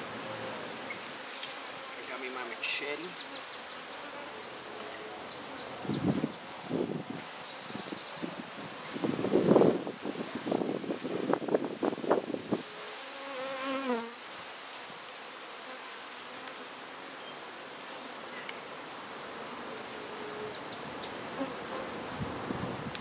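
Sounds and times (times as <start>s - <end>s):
bees buzzing: 0.0s - 8.0s, 12.6s - 14.2s, 15.3s - 22.6s.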